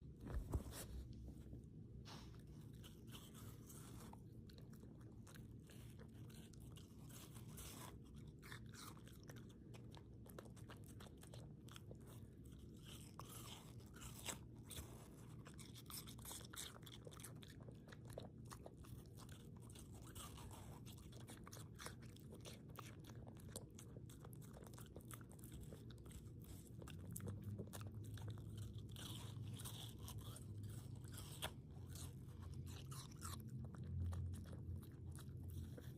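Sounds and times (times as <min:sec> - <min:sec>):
steady low hum: 0:00.0 - 0:35.9
chewing watermelon crunches: 0:02.4 - 0:35.9.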